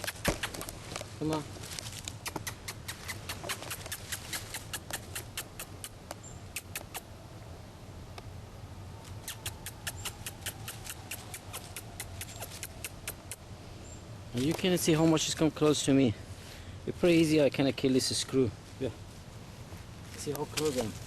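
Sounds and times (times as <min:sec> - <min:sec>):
mouth clicks and kissing squeaks: 0:00.0 - 0:00.7, 0:02.1 - 0:07.1, 0:09.2 - 0:13.4.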